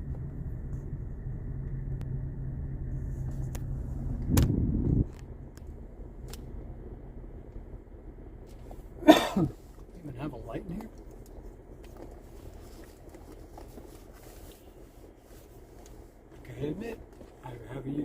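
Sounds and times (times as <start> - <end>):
low engine surge: 0.0 - 17.2
car engine idling: 0.0 - 18.0.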